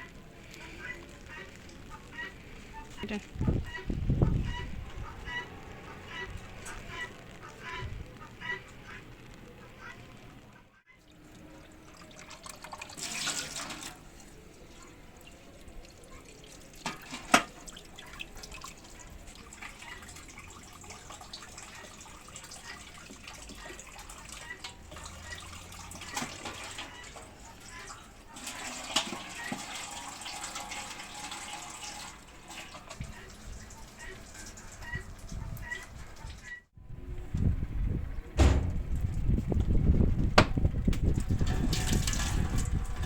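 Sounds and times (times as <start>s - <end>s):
water running and splashing: 11.0s - 36.4s.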